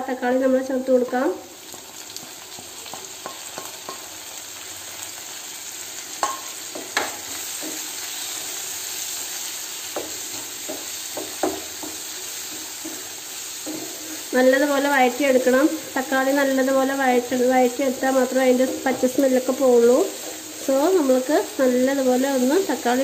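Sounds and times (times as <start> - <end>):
vegetables sizzling in oil: 0.0 - 23.0
wooden spatula scraping pan: 17.7 - 21.2.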